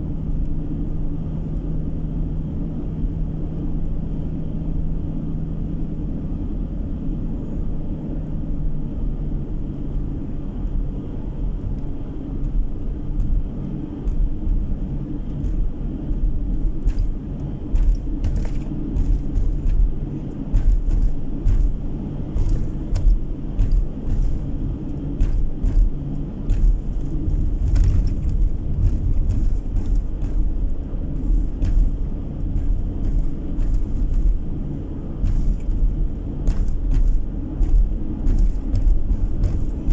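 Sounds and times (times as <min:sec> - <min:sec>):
engine and tyre rumble: 0:00.0 - 0:39.9
knocks and rattles: 0:12.4 - 0:39.9.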